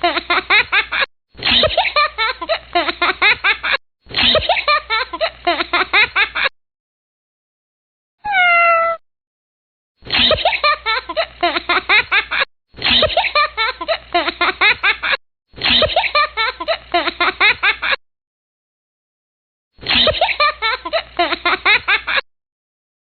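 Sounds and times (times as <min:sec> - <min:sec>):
kitten meow: 0:08.2 - 0:09.0.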